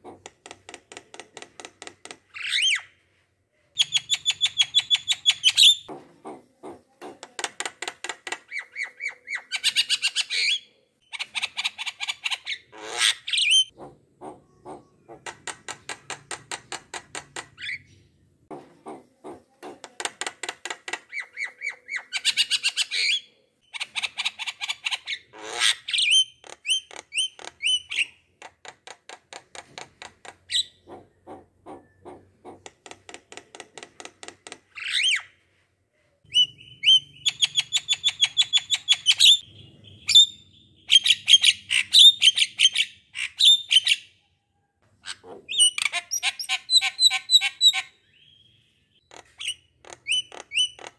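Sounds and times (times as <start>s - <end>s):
bird song trills: 36.3s - 44.4s.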